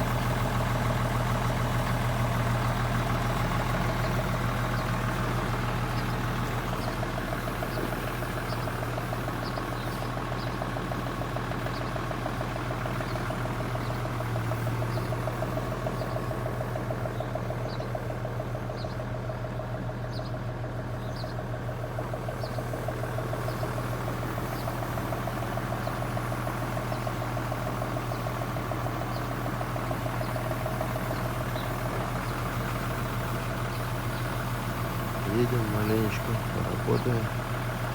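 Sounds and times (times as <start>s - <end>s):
diesel engine idling: 0.0s - 37.9s.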